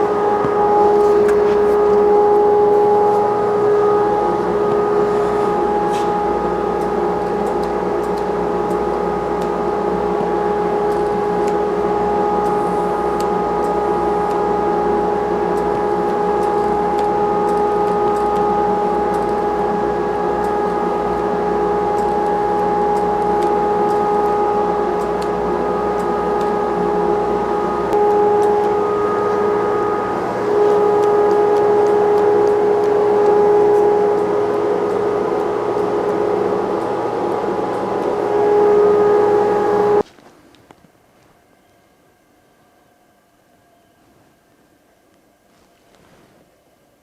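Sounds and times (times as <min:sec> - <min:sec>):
machine drone: 0:00.0 - 0:40.0.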